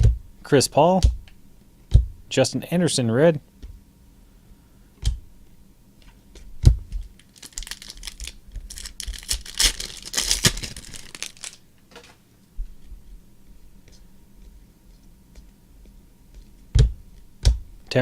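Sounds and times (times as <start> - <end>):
wrapper tearing and crinkling: 7.2 - 11.6.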